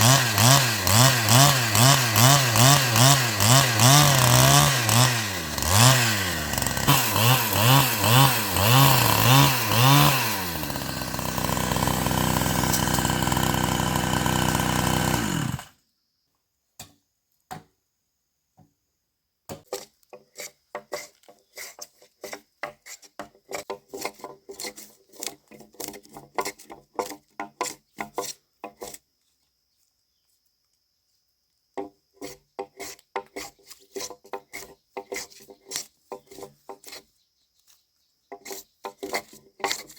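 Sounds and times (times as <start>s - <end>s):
chainsaw revving: 0.0s - 15.8s
scraping or tapping on wood: 19.5s - 29.0s, 31.8s - 37.1s, 38.3s - 39.9s.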